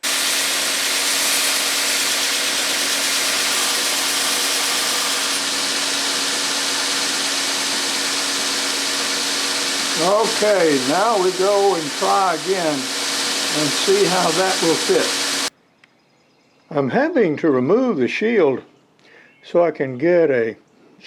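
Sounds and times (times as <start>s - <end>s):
belt sander grinding metal: 0.0s - 15.5s.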